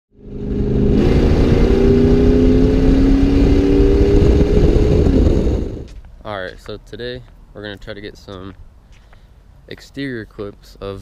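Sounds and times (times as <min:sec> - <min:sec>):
loud car engine under throttle: 0:00.1 - 0:06.0.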